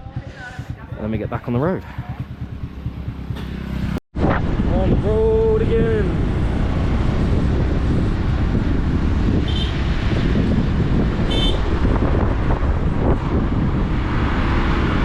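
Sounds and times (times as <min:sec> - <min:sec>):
motorbike engine: 0:00.0 - 0:04.0
road noise: 0:00.0 - 0:15.0
wind buffeting microphone: 0:04.2 - 0:15.0
horn beeping: 0:11.3 - 0:11.7.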